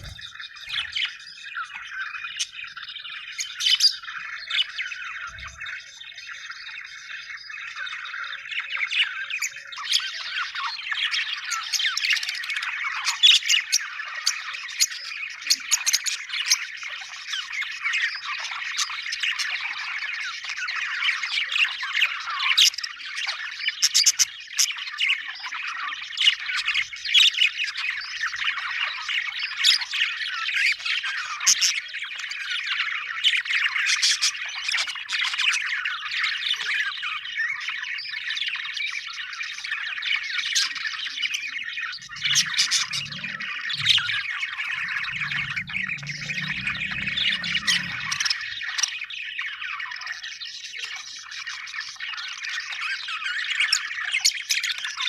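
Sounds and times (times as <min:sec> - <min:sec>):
budgerigars chattering: 0:00.0 - 0:30.2, 0:39.2 - 0:49.8.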